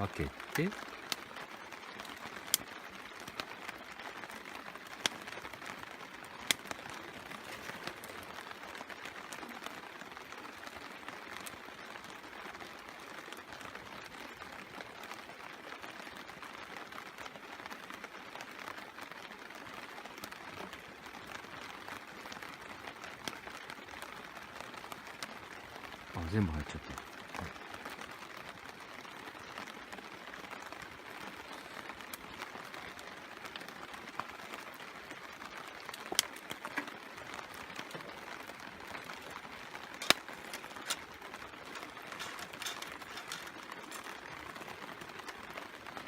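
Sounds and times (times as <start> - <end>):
rain on a tarp: 0.0 - 46.0
sharp clicks: 40.0 - 41.1.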